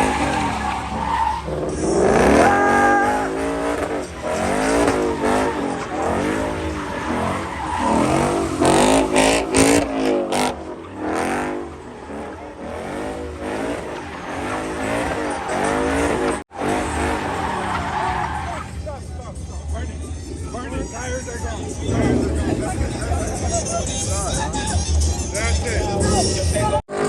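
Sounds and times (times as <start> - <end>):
car engine revving: 0.0 - 27.0
tire squeal: 0.0 - 27.0.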